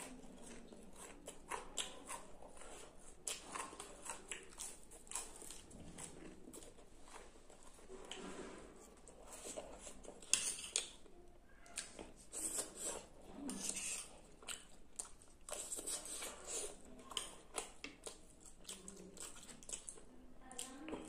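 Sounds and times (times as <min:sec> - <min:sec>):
chewing and wet mouth sounds: 0:00.0 - 0:21.0
fork scraping a plate: 0:08.0 - 0:11.0, 0:12.3 - 0:14.1.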